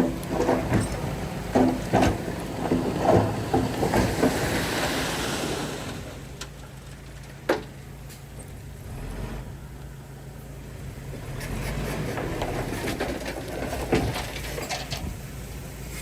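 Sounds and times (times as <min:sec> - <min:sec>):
metallic clanks and rattles: 0:00.0 - 0:04.4, 0:11.3 - 0:16.0
low engine hum: 0:00.0 - 0:16.0.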